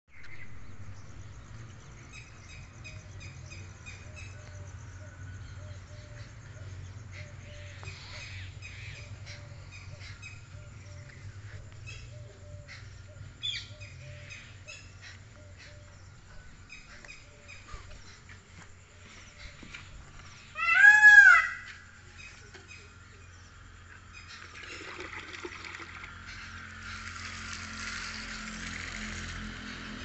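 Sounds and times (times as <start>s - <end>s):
birds chirping: 0.1s - 30.0s.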